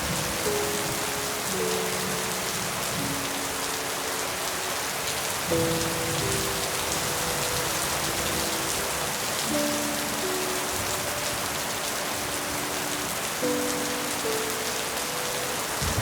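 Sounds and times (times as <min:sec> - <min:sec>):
rain falling on leaves: 0:00.0 - 0:16.0.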